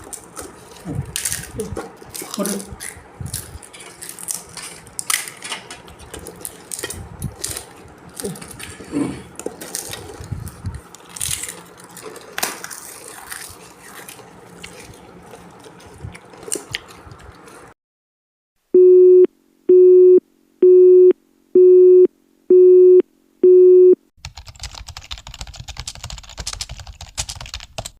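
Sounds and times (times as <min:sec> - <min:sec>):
typing-like clatter: 0:24.2 - 0:27.9.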